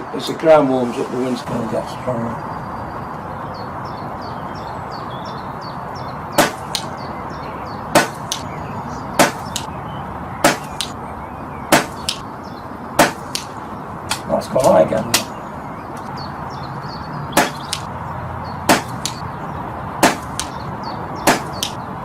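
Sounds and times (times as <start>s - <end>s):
high birdsong chirps: 0.0s - 22.0s
sharp knocks: 6.4s - 6.9s, 7.9s - 8.5s, 9.2s - 9.7s, 10.4s - 11.0s, 11.7s - 12.2s, 13.0s - 15.3s, 17.3s - 17.9s, 18.7s - 19.2s, 20.0s - 20.6s, 21.2s - 21.8s.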